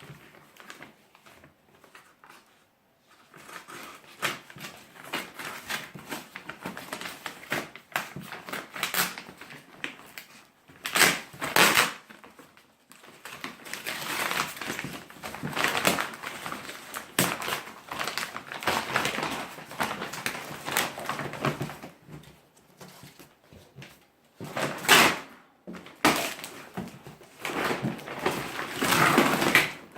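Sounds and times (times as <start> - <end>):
crunching and scraping: 17.1 - 29.9.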